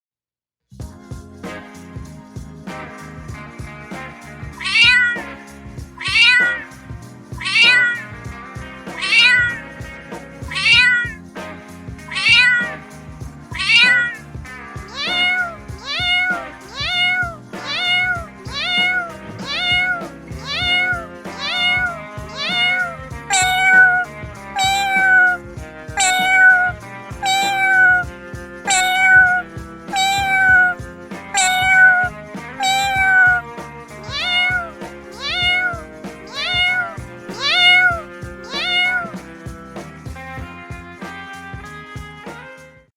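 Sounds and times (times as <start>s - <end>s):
background music: 0.8s - 42.9s
cat meowing: 4.6s - 5.4s, 6.0s - 6.8s, 7.4s - 8.2s, 9.0s - 9.7s, 10.5s - 11.2s, 12.1s - 12.8s, 13.5s - 28.1s, 28.7s - 39.3s.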